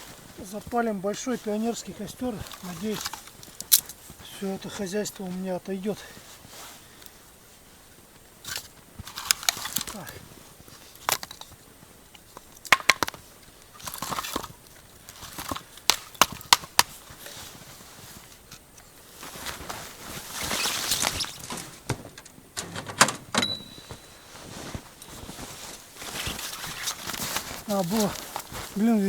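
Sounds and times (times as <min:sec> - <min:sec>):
rustling: 0:00.0 - 0:29.0
wood snapping and knocking: 0:12.6 - 0:13.2, 0:15.3 - 0:16.9.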